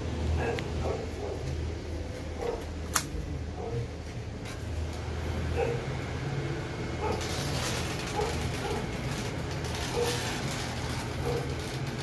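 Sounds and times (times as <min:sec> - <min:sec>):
sharp click: 0:02.9 - 0:03.1.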